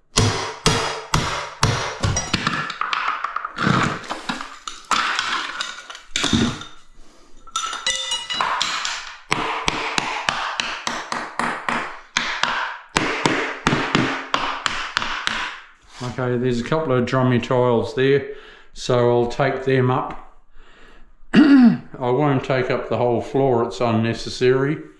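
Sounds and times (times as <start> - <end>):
tool striking ceramic tiles: 0.0 - 6.8, 7.5 - 15.7
ringing clatter: 7.5 - 8.9.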